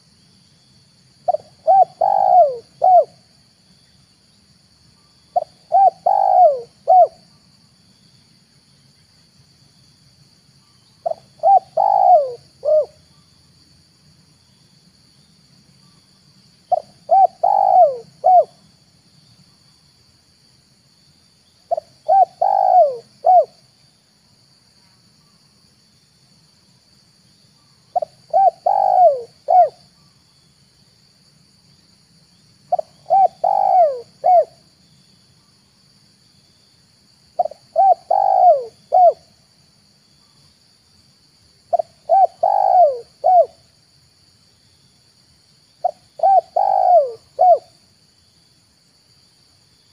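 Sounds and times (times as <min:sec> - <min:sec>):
dove cooing: 0:01.3 - 0:03.2, 0:05.4 - 0:07.2, 0:11.0 - 0:13.0, 0:16.7 - 0:18.6, 0:21.7 - 0:23.6, 0:28.0 - 0:29.8, 0:32.7 - 0:34.6, 0:37.4 - 0:39.3, 0:41.7 - 0:43.6, 0:45.8 - 0:47.8.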